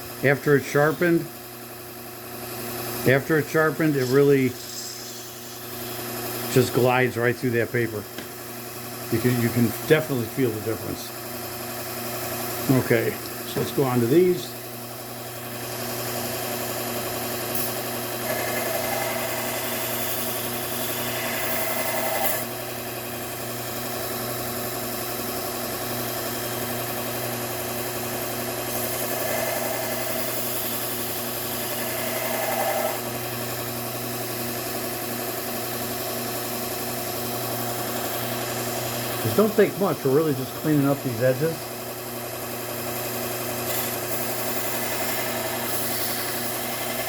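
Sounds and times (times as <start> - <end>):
belt sharpener running: 0.0 - 47.0
scissor blade grinding on belt: 3.5 - 7.0, 17.6 - 22.5, 28.6 - 33.1, 43.5 - 47.0.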